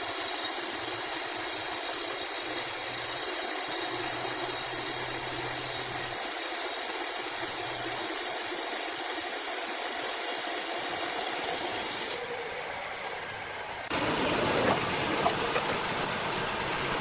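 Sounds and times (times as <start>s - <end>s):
hiss: 0.0s - 12.2s.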